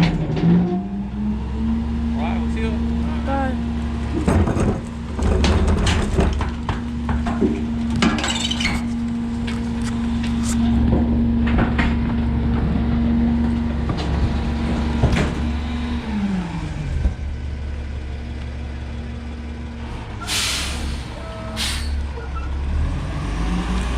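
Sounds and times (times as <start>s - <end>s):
garbage truck whine: 0.0s - 23.9s
air brake hisses: 20.2s - 22.0s.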